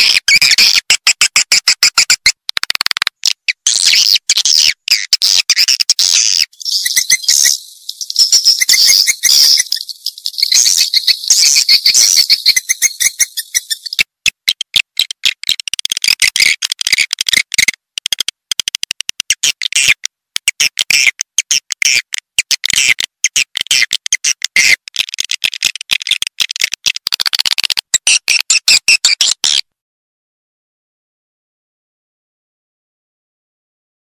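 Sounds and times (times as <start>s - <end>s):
twittering bird chirps and clicks: 0.0s - 29.7s.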